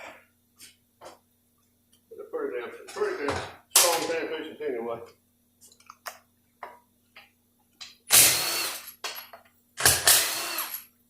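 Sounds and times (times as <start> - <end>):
impact wrench bursts: 8.1 - 9.0, 9.8 - 10.9.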